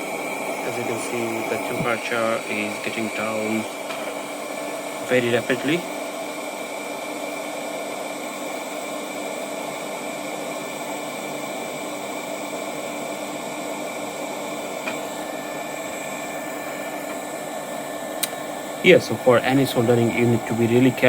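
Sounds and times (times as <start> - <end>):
hot air gun blowing: 0.0 - 8.2.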